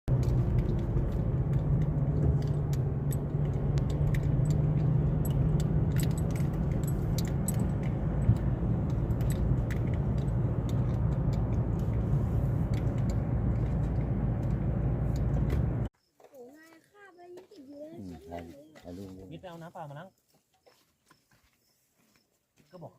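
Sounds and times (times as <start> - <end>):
engine rumbling: 0.0 - 15.9
rattling clicks and clinks: 0.5 - 12.0.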